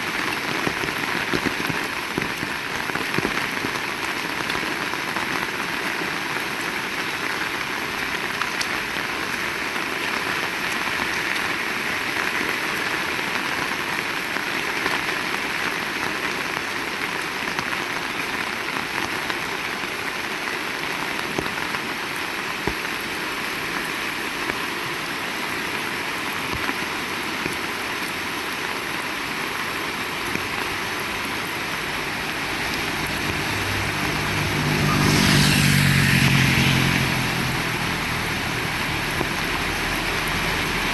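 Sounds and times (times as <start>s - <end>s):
heavy rain falling: 0.0s - 40.9s
vehicle engine approaching: 30.5s - 40.9s.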